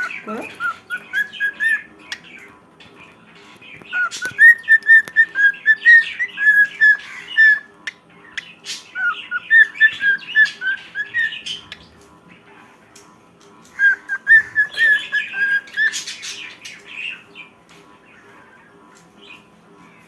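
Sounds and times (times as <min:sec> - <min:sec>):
scratchy bird chatter: 0:00.0 - 0:20.0
cockatiel whistling: 0:00.6 - 0:01.9, 0:03.9 - 0:07.7, 0:08.4 - 0:11.7, 0:13.8 - 0:16.4.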